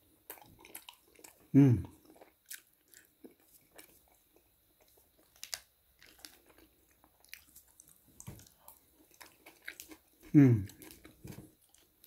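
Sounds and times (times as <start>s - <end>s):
person chewing crunchy food: 0.0s - 12.0s.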